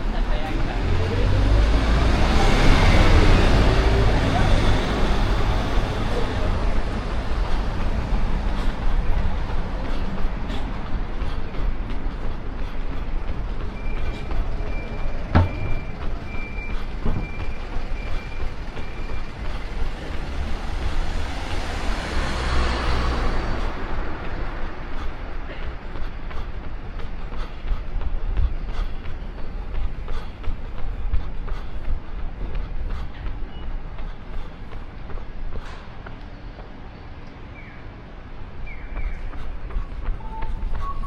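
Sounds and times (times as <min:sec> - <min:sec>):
street traffic rumbling: 0:00.0 - 0:41.0
sharp knocks: 0:15.3 - 0:16.0.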